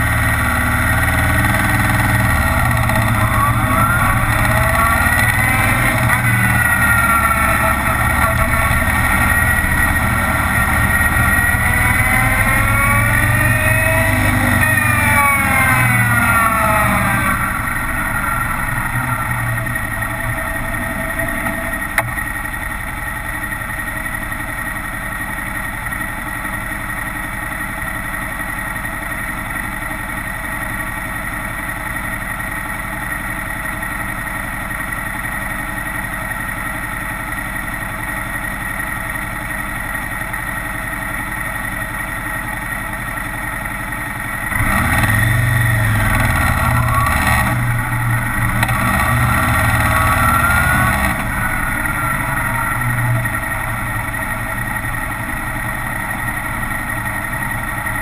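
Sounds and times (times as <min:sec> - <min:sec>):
motorcycle engine: 0:00.0 - 0:58.0.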